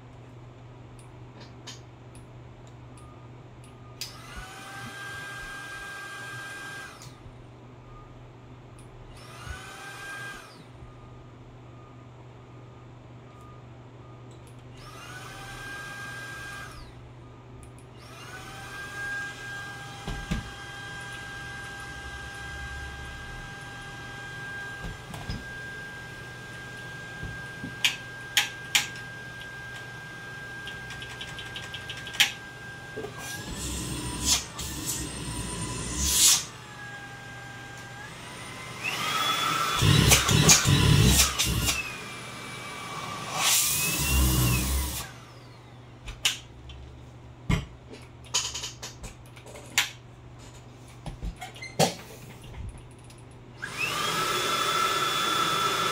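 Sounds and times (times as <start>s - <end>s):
vacuum cleaner motor whining: 4.1s - 7.1s, 9.1s - 10.6s, 14.8s - 17.0s, 18.0s - 31.0s, 31.8s - 45.8s, 53.6s - 55.9s
sharp clicks: 30.6s - 32.4s.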